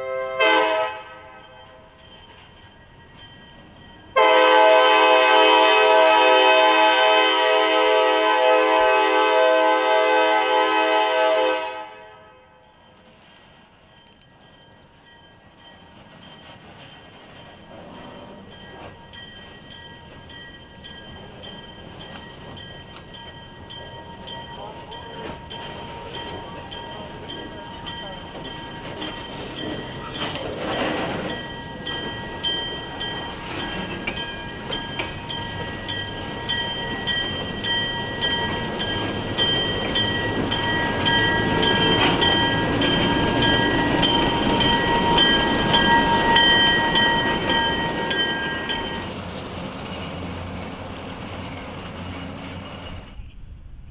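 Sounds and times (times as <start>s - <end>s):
locomotive horn: 0.0s - 1.9s, 4.2s - 12.6s
train rumbling: 0.0s - 53.9s.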